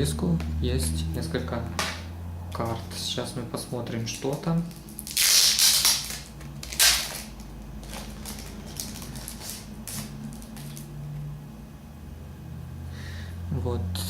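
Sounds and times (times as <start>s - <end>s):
packaging crinkling and rustling: 3.9s - 11.0s.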